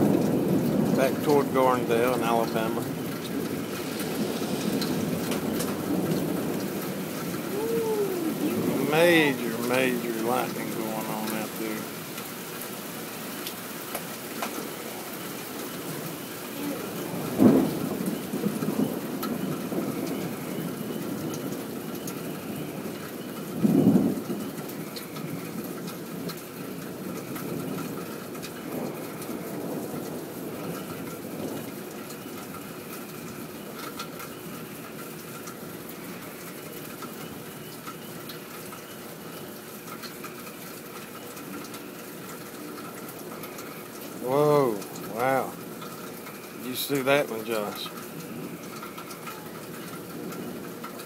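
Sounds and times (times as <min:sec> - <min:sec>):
thunder claps: 0:00.0 - 0:11.9, 0:13.9 - 0:21.7
steady rain falling: 0:00.0 - 0:51.0.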